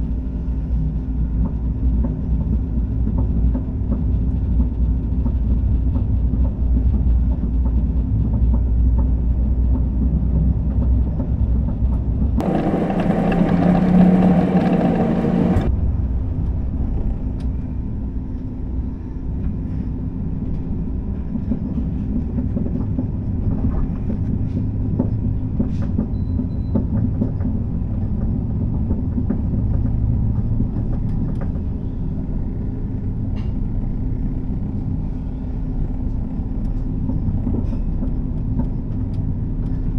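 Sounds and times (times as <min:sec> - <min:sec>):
train rumble inside carriage: 0:00.0 - 0:39.9
harsh rushing noise: 0:12.4 - 0:15.7
steady hum: 0:12.4 - 0:15.9.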